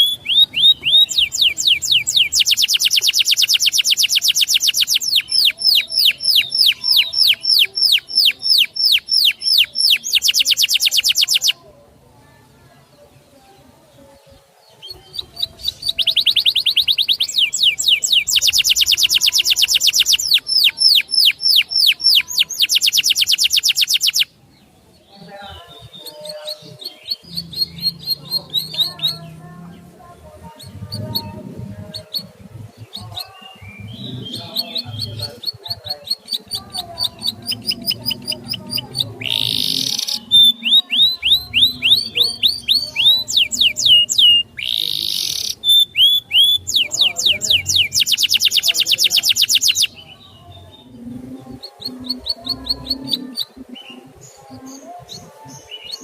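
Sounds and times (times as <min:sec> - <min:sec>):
soft bird chirps: 0:00.0 - 0:11.6, 0:13.4 - 0:24.8
songbird trilling: 0:00.0 - 0:11.6, 0:14.8 - 0:24.4, 0:25.8 - 0:29.3, 0:30.5 - 0:50.1.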